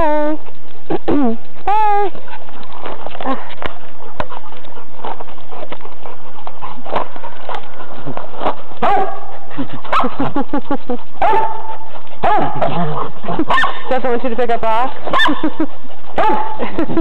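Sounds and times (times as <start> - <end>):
dog barking and yipping: 8.4 - 14.2, 15.0 - 17.0.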